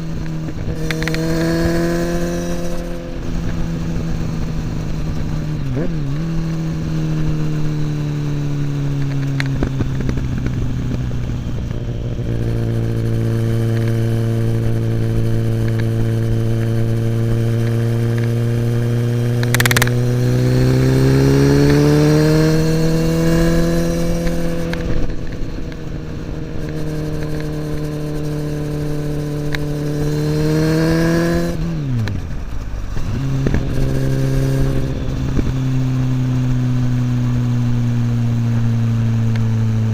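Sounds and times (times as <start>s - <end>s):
motorcycle engine revving: 0.0s - 39.9s
sharp click: 0.7s - 1.5s, 19.4s - 20.0s.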